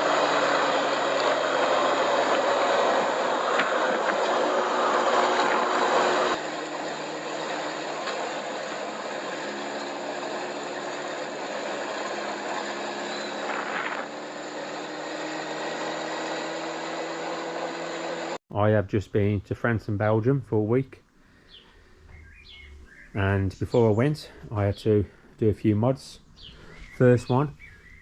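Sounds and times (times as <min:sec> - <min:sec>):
motorcycle engine running: 0:00.0 - 0:18.4
wind and road noise: 0:00.0 - 0:18.4.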